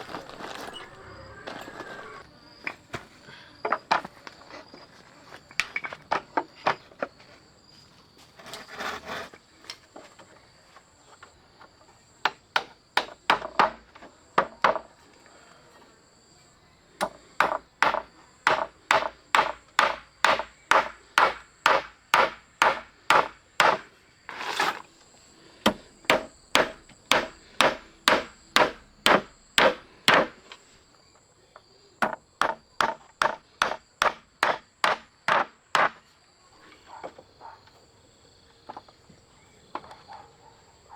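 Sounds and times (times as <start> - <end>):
insects droning: 0.0 - 40.9
scraping rub: 8.3 - 9.4, 24.3 - 25.0
knocks of blows on wood: 12.2 - 14.9, 17.0 - 23.9, 25.6 - 30.6, 32.0 - 36.0.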